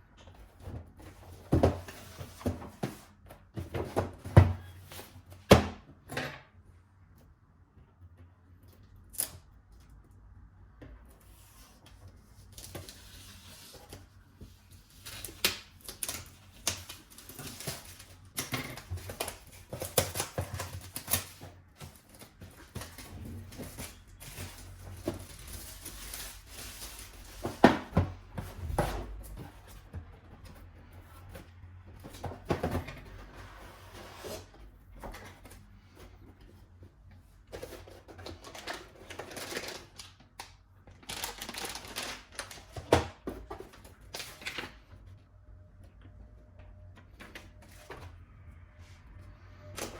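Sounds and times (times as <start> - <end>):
packaging rustling: 14.8 - 27.9, 37.4 - 44.8.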